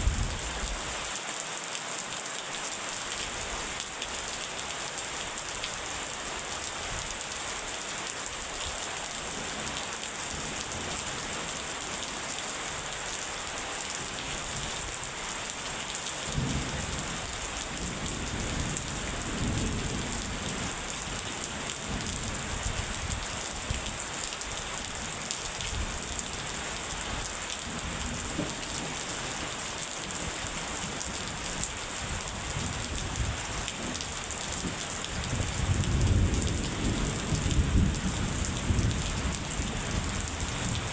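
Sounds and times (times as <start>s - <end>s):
low thunder rumble: 0.0s - 0.6s
heavy rain: 0.0s - 40.9s.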